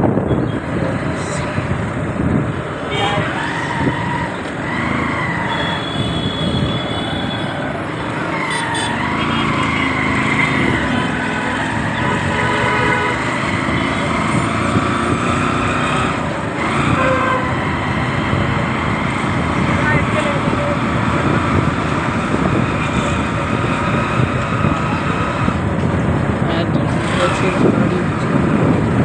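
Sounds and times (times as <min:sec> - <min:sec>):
road traffic rumble: 0:00.0 - 0:29.0
vehicle horns: 0:02.9 - 0:03.4, 0:05.4 - 0:07.6, 0:08.4 - 0:10.7, 0:11.9 - 0:14.2, 0:16.6 - 0:17.6.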